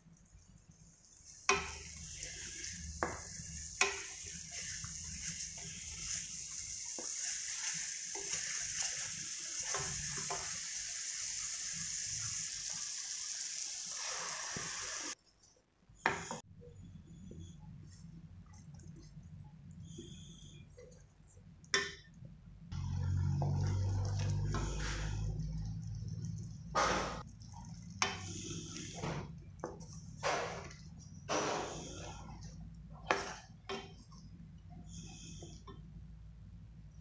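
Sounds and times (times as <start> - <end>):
paste sizzling in a pan: 0.7 - 15.2, 22.8 - 34.2
wooden spatula scraping a pan: 1.2 - 10.8, 26.7 - 34.2.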